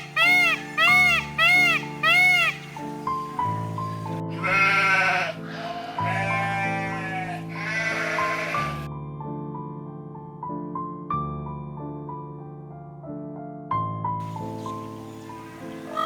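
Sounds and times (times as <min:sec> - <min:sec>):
piano music: 0:00.0 - 0:16.0
animal bleating: 0:04.3 - 0:08.9.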